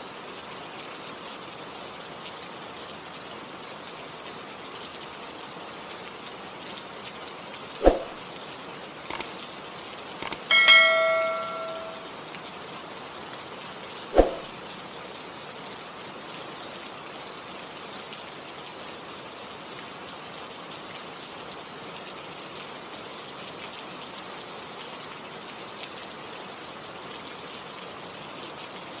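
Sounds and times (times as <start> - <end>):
steady rain falling: 0.0 - 29.0
sharp ringing strike: 10.5 - 12.1.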